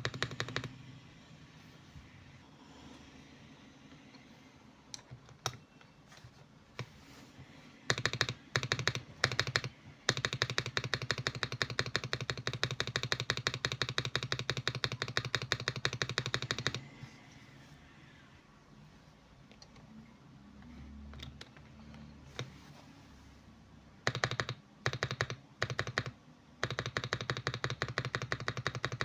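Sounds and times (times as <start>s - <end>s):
typing on mechanical keyboard: 0.0s - 0.8s, 4.9s - 6.0s, 7.8s - 16.9s, 21.0s - 22.6s, 24.0s - 29.0s.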